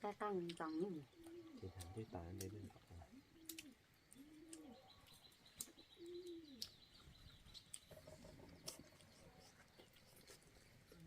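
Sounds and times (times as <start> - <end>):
faint high chirps: 0.5 - 11.0
faint dove cooing: 0.9 - 5.0, 5.9 - 6.7.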